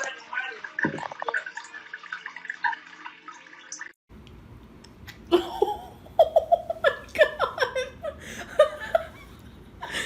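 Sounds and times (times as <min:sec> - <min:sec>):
giggling laughter: 0:05.3 - 0:10.0.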